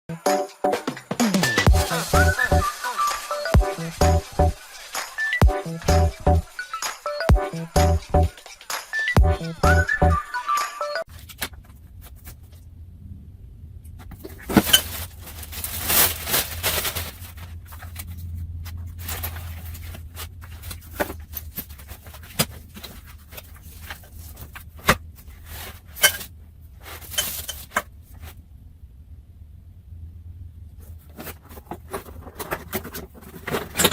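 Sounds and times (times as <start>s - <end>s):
scraping and rustling: 14.0s - 28.4s, 30.7s - 33.9s.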